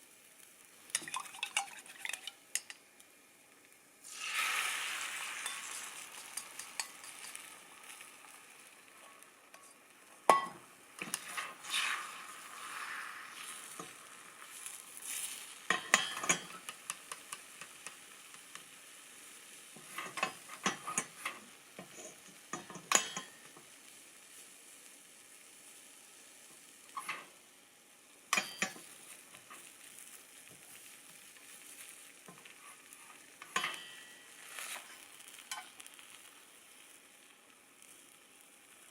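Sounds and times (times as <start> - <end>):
food sizzling in a frying pan: 0.0 - 38.9
utensil tapping and scraping pan: 0.9 - 2.8, 6.2 - 7.5, 15.7 - 18.6, 19.8 - 23.4, 32.2 - 35.8.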